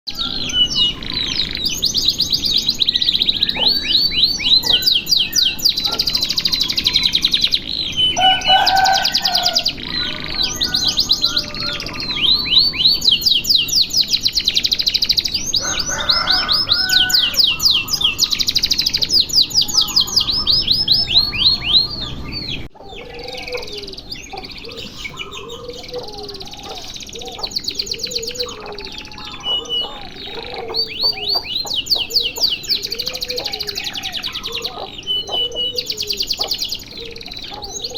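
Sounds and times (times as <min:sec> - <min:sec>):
canary singing trills: 0:00.0 - 0:37.9.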